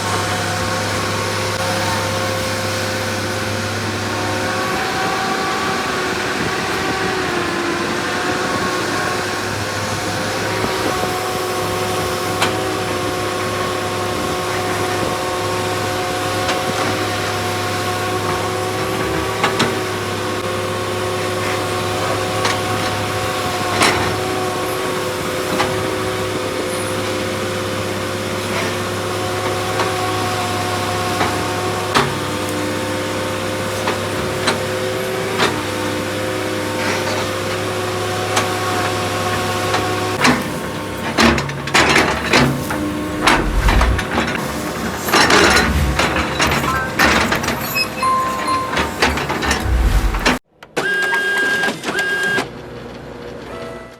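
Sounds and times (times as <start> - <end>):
excavator engine running: 39.3 - 50.4
whining tones: 42.9 - 50.4.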